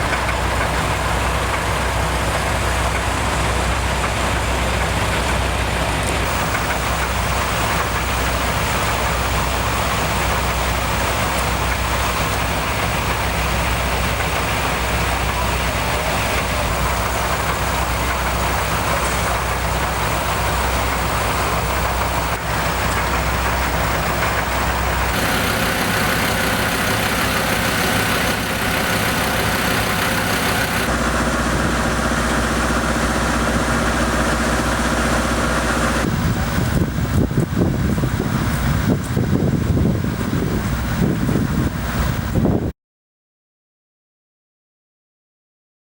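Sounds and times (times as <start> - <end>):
vehicle engines idling: 25.0 - 36.0.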